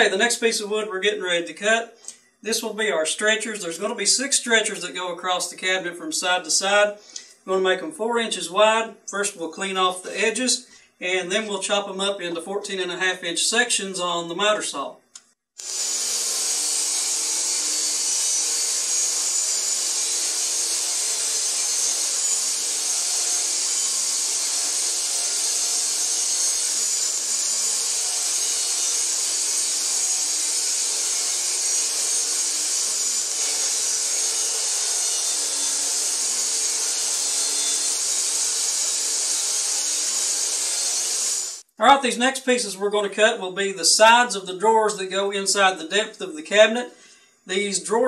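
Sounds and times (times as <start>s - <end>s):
table saw whining: 15.6s - 41.7s.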